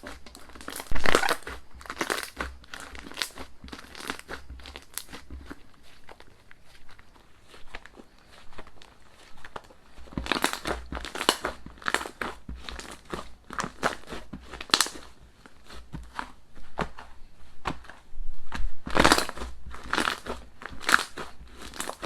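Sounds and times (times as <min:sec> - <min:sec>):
slime squeezed by hand: 0:00.0 - 0:06.9.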